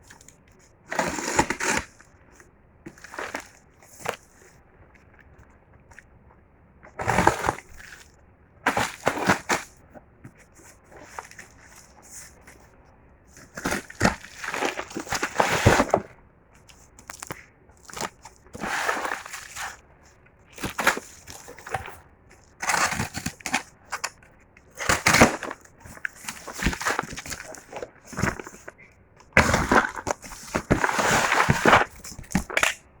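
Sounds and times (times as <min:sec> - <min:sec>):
packaging crinkling and tearing: 0:16.7 - 0:19.8, 0:20.5 - 0:28.8, 0:29.4 - 0:32.8.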